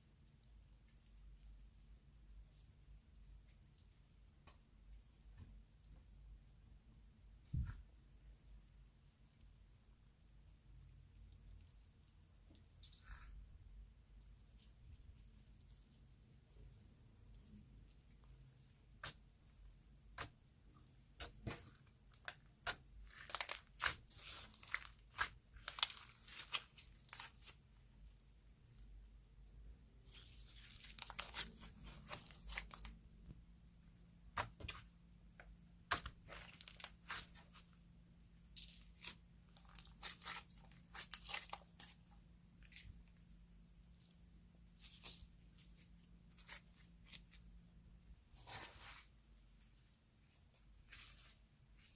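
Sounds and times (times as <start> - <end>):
crackling tearing slime: 20.1 - 27.6, 30.0 - 33.0, 35.9 - 37.6, 38.5 - 43.2.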